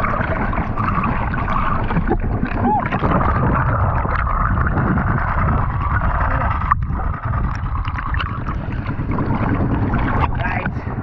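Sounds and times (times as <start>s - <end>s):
seawater rushing and sloshing: 0.0s - 11.0s.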